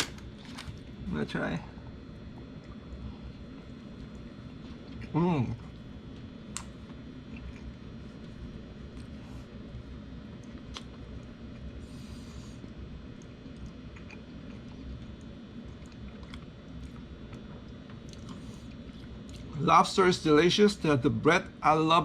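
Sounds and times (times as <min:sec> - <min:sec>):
person chewing food: 0:02.4 - 0:09.6, 0:10.2 - 0:19.5.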